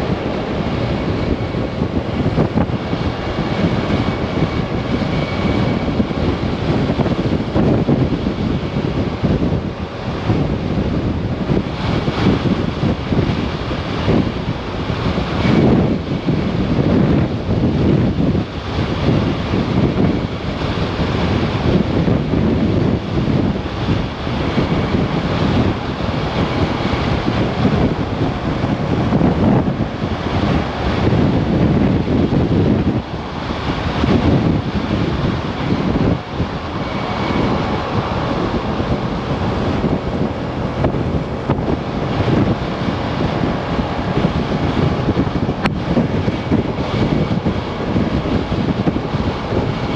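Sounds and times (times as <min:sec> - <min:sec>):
wind buffeting microphone: 0:00.0 - 0:49.9
scooter engine and road noise: 0:19.1 - 0:49.9.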